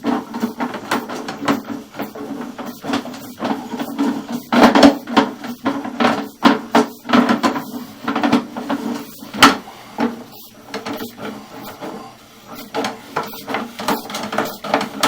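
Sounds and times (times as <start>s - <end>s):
cable knocking and scraping in pipe: 0.0s - 15.0s.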